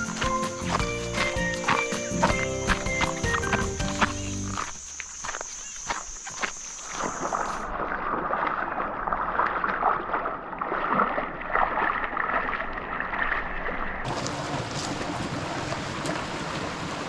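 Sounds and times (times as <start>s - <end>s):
stream water rushing: 0.0s - 4.8s, 14.1s - 17.0s.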